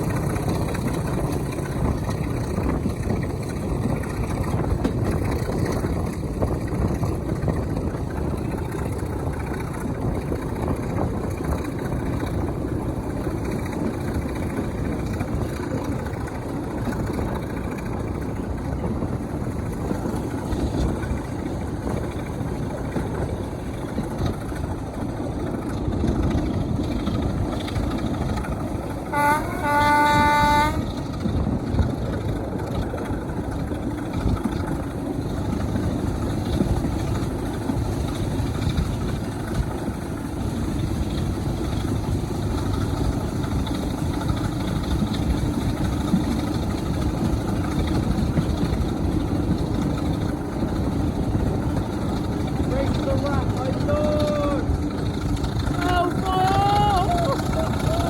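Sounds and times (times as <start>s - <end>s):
diesel locomotive rumbling: 0.0s - 58.0s
locomotive horn blast: 29.0s - 31.2s.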